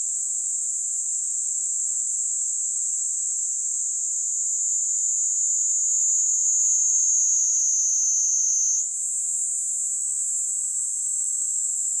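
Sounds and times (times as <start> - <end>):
cicada buzzing trill: 5.7 - 8.8.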